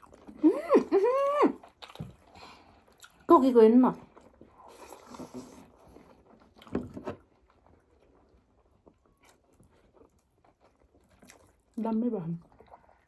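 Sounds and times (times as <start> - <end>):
person biting and chewing food: 1.6 - 2.3.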